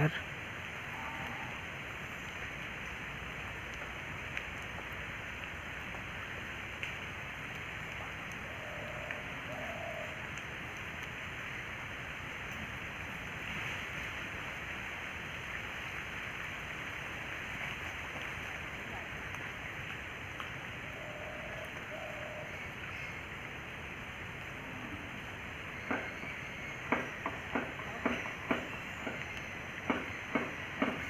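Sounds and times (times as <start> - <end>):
rushing water or wind: 0.0 - 31.0
faint clicks: 3.6 - 11.2.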